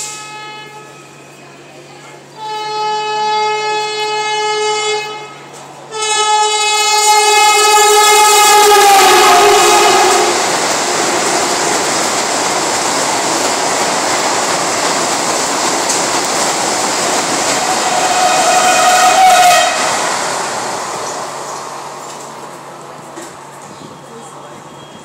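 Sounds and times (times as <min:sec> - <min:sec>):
train horn: 0:00.0 - 0:11.4, 0:17.5 - 0:20.1
train rushing past: 0:02.4 - 0:25.0.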